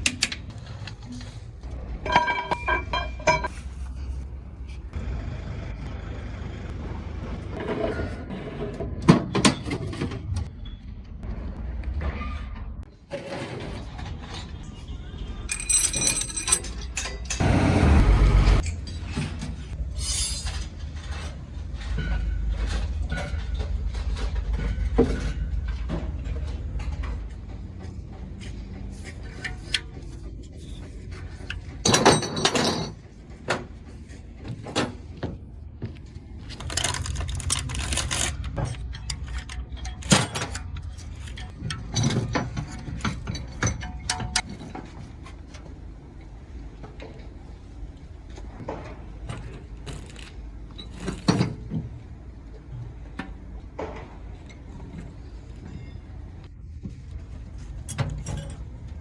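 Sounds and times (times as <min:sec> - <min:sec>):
metallic clicks and knocks: 0:00.0 - 0:01.3, 0:36.5 - 0:45.7.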